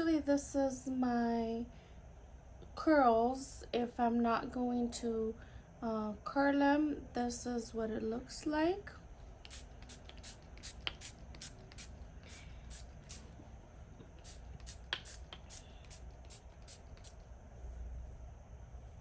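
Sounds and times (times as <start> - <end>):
spray bottle squirts: 9.4 - 13.3, 14.2 - 17.2.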